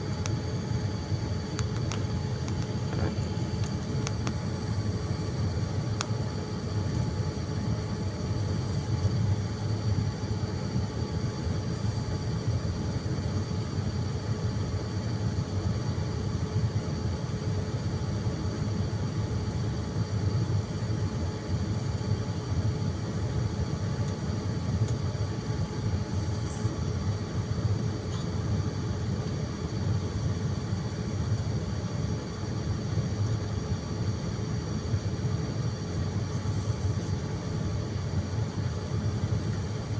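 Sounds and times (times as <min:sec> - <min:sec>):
airliner cabin rumble: 0:00.0 - 0:13.1
faint engine hum: 0:00.0 - 0:18.4.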